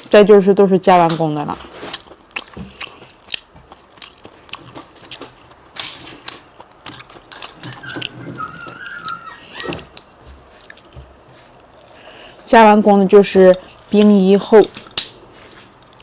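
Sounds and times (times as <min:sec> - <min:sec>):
wet crunchy chewing: 0:01.6 - 0:12.0, 0:14.7 - 0:16.0.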